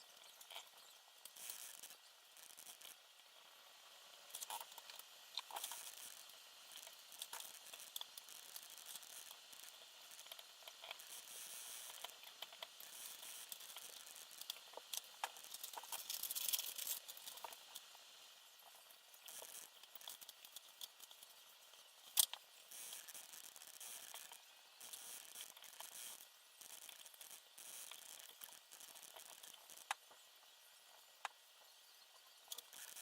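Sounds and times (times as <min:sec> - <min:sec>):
light clicks of small parts: 0:18.6 - 0:30.1, 0:32.4 - 0:33.0.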